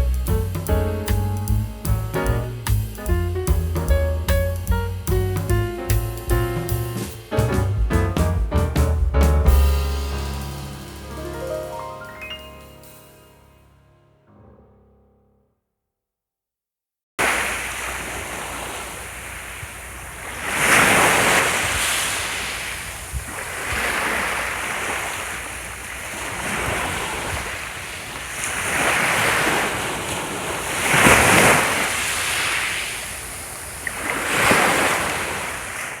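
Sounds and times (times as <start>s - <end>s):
ocean waves washing onto shore: 17.2s - 36.0s.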